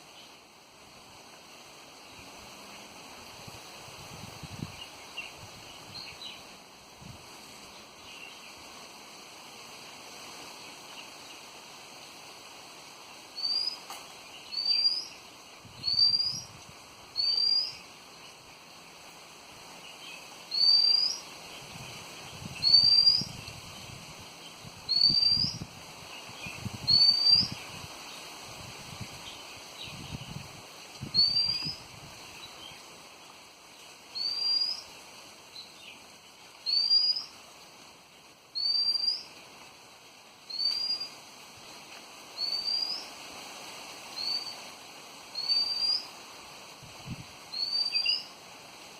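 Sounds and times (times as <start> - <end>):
wind rumbling on microphone: 2.0 - 8.9, 14.5 - 17.9, 20.5 - 33.0, 45.4 - 48.3
faint bird chirps: 13.3 - 16.6, 17.2 - 18.7, 19.9 - 23.5, 24.9 - 25.6, 26.2 - 27.8, 31.2 - 32.9, 34.1 - 37.4, 38.2 - 39.4, 40.5 - 41.2, 42.4 - 43.1, 44.1 - 44.6, 45.3 - 46.1, 47.5 - 48.4
bird whistling rising note: 31.2 - 31.7.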